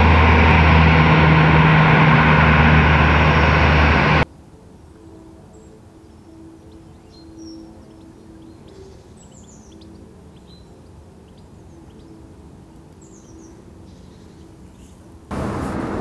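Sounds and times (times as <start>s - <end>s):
low outdoor rumble: 0.0s - 4.2s, 15.3s - 16.0s.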